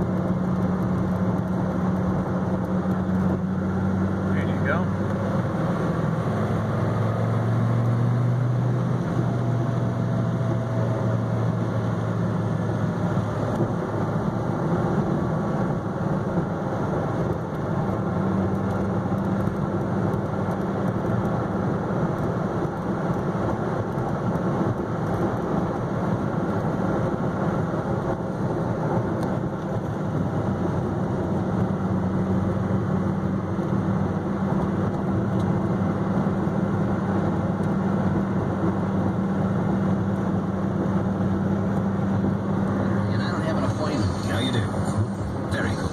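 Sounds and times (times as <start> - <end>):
car engine droning: 0.0 - 45.9
tyre and road rumble: 0.0 - 45.9.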